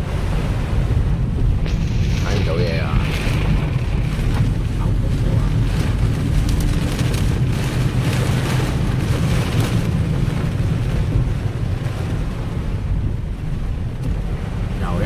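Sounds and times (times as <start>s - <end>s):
heavy rain: 0.0s - 15.0s
strong wind on microphone: 0.0s - 15.0s
vehicle driving: 1.2s - 12.0s.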